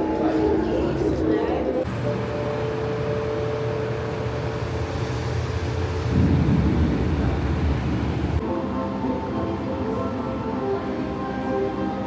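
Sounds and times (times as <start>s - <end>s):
motor vehicle rumble: 3.9s - 8.4s.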